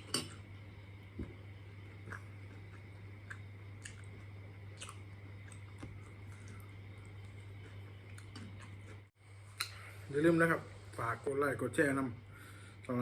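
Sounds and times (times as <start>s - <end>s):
steady low hum: 0.0s - 13.0s
person chewing food: 1.9s - 9.8s
soft mouth clicks: 9.6s - 9.8s.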